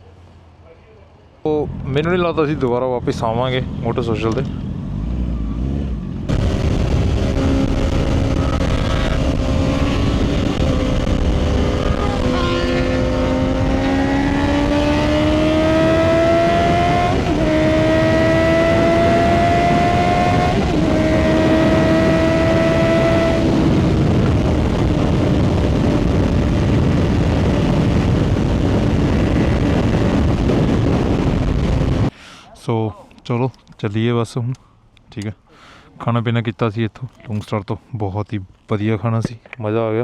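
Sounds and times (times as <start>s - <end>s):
motorcycle engine running: 5.9s - 32.1s
heavy wind rush: 6.3s - 32.2s.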